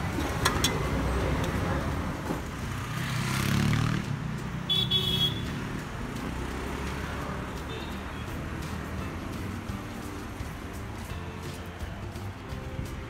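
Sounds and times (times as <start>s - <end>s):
vehicle passing close: 0.0s - 11.3s
street traffic rumbling: 0.0s - 13.0s
short car horn toot: 4.7s - 5.4s.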